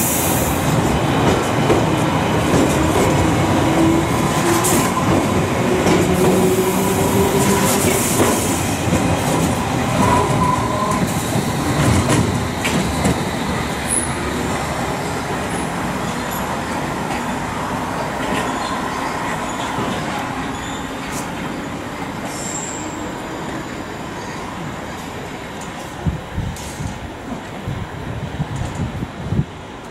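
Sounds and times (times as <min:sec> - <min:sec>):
high wheel squeals: 0:22.3 - 0:23.1.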